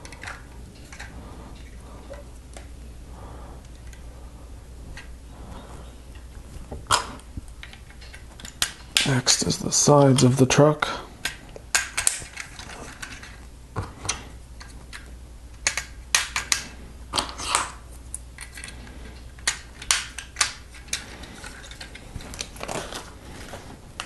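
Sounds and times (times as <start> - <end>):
plastic bricks clicking: 11.2 - 13.4, 14.0 - 17.8, 19.4 - 23.1.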